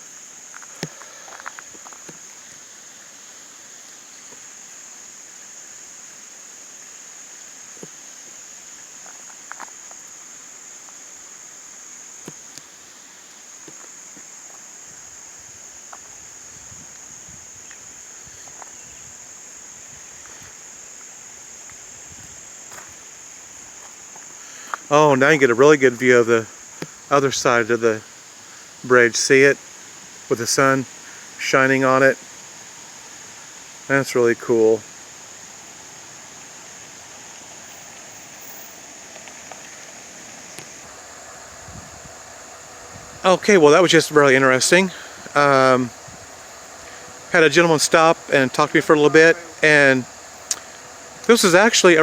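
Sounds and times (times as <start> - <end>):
insects buzzing drone: 0.0 - 52.0
steady hiss: 0.0 - 52.0
high unbroken tone: 46.8 - 52.0
faint clicks: 50.0 - 51.3.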